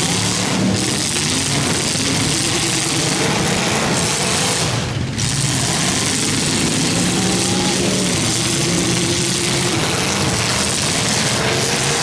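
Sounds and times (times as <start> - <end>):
car engines running loudly: 0.0 - 12.0.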